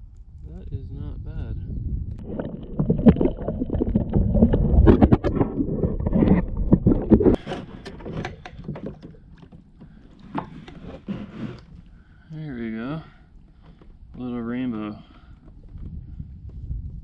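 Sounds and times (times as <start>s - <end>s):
handling clatter against a kayak: 4.9s - 12.0s, 13.3s - 17.0s.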